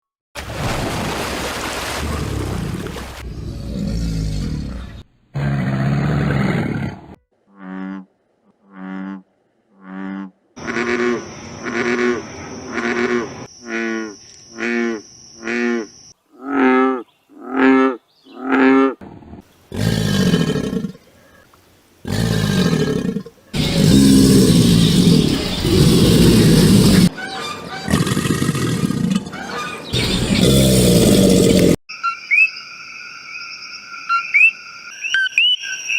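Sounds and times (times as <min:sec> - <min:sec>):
noisy animal call: 0:09.8 - 0:32.4.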